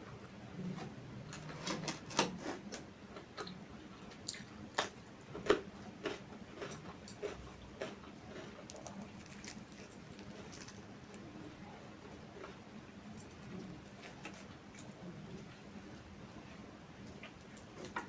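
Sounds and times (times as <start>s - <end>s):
chewing and smacking food: 2.7s - 11.3s, 12.0s - 15.6s.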